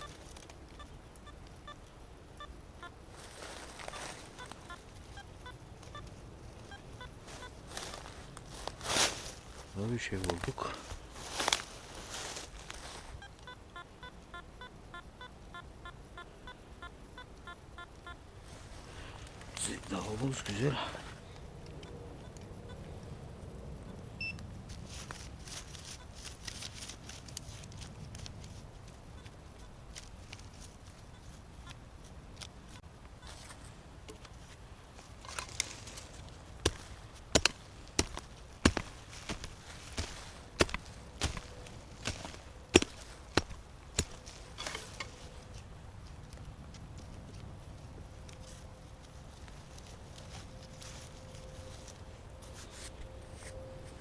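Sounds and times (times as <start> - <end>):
rustle of soil and leaves: 0.0 - 13.5, 18.1 - 21.9, 23.8 - 54.0
pinpointer beeping rapidly: 13.2 - 18.2, 24.2 - 24.4
pickaxe striking ground: 36.6 - 45.2.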